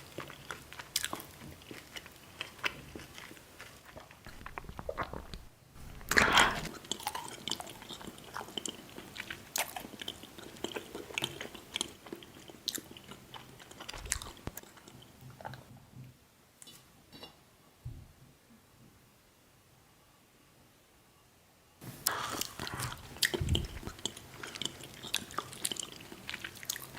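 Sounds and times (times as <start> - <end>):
person chewing candy: 0.0 - 15.7, 22.0 - 26.9.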